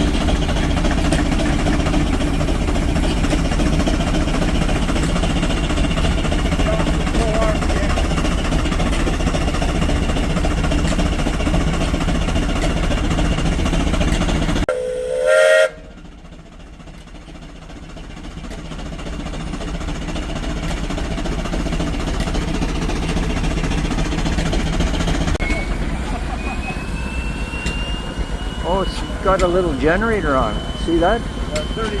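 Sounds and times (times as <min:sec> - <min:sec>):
low mechanical rumble: 0:00.0 - 0:32.0
steam whistle blast: 0:14.7 - 0:16.0, 0:25.4 - 0:32.0.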